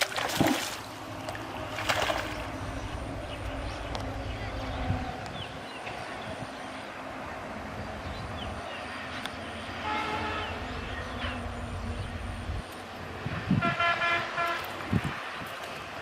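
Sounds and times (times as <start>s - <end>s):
low engine rumble: 0.7s - 13.7s
vehicle horn honking: 9.8s - 10.6s, 13.5s - 14.8s.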